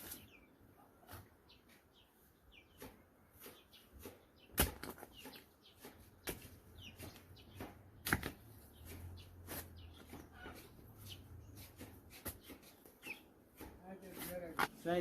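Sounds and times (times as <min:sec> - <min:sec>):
chickens clucking: 0:08.8 - 0:13.7.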